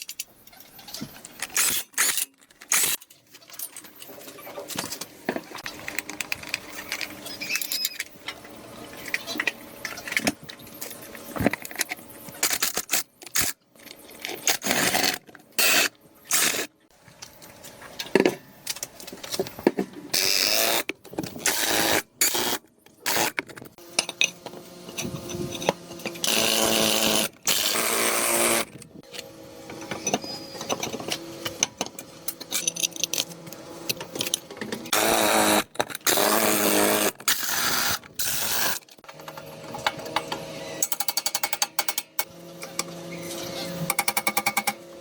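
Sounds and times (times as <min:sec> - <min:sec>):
clicks and scraping of tool work: 0:00.0 - 0:44.8.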